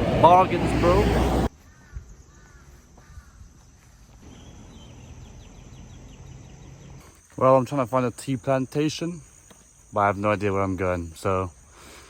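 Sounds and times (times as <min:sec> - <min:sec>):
loud street noise: 0:00.0 - 0:01.5
rapid insect chirping: 0:01.5 - 0:12.0.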